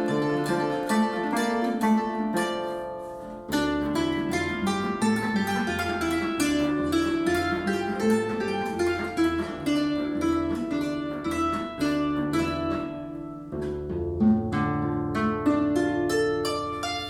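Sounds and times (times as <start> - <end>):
plucked string instrument music: 0.0 - 17.0.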